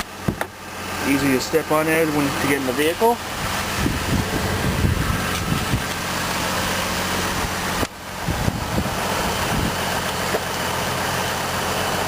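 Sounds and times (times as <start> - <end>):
car engine idling: 0.0 - 12.0
wind noise on microphone: 3.2 - 6.1, 7.2 - 9.9.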